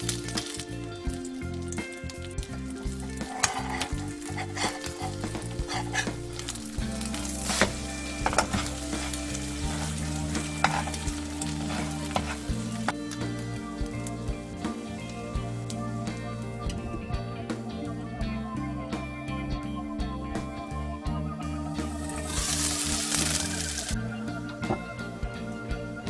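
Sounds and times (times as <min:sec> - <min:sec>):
background music: 0:00.0 - 0:26.0
spatula scraping a pan: 0:03.2 - 0:13.0
food sizzling in a pan: 0:03.3 - 0:12.9, 0:22.2 - 0:23.9.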